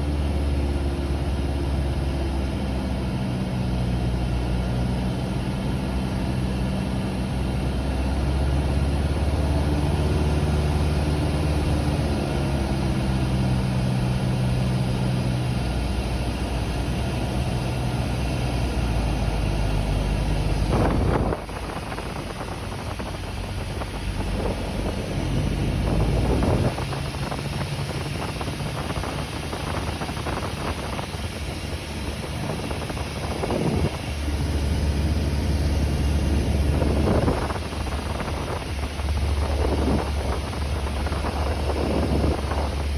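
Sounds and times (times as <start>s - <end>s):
light aircraft engine droning: 0.0s - 42.9s
rushing air: 18.7s - 42.9s.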